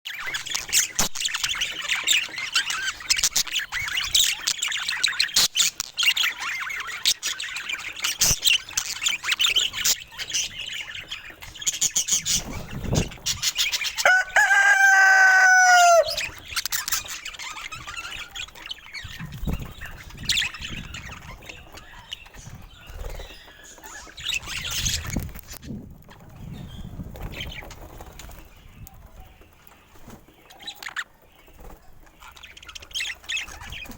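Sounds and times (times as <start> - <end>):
parrots chirping and chattering: 0.1 - 33.9
loud parrot call: 14.0 - 16.3.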